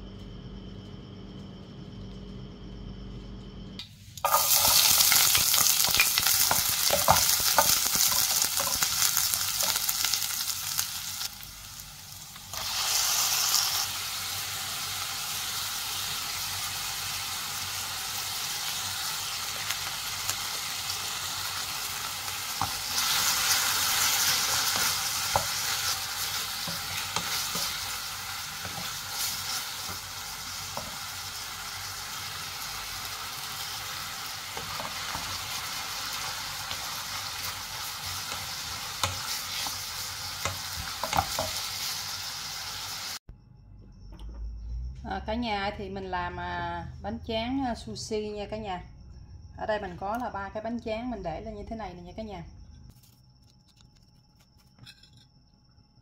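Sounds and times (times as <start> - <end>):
food sizzling in a frying pan: 4.2 - 43.3.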